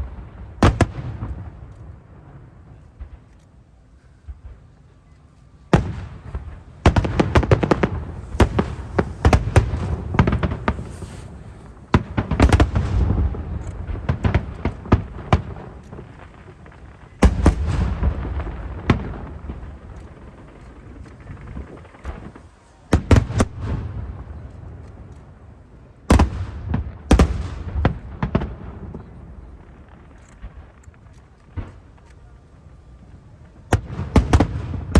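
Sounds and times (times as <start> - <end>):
firework bangs and crackles: 0.0 - 34.9.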